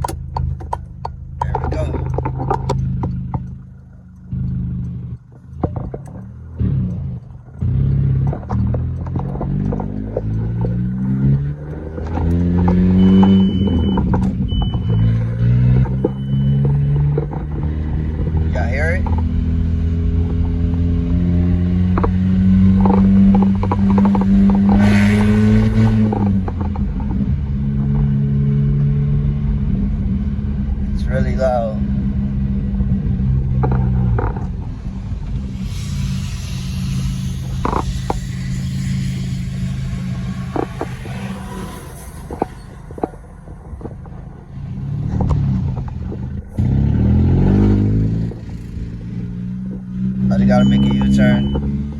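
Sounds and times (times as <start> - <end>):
car engine revving: 0.0 - 51.9
hiss: 35.5 - 42.7.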